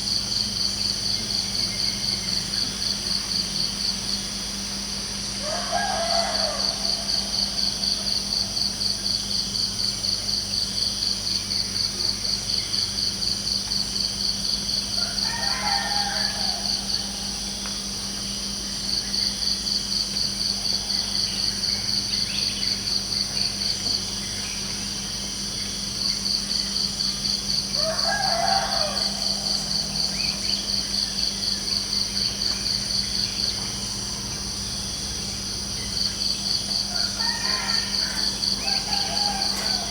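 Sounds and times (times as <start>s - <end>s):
crickets chirping: 0.0s - 39.9s
rooster crowing: 5.4s - 8.2s, 15.0s - 17.4s, 27.7s - 30.7s, 36.7s - 39.9s.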